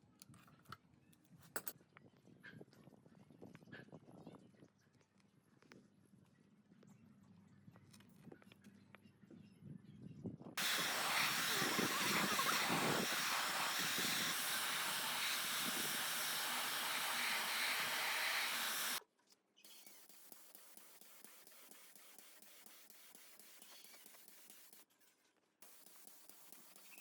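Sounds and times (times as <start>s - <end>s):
hiss of spraying air: 10.6s - 19.0s, 19.7s - 24.8s, 25.6s - 27.0s.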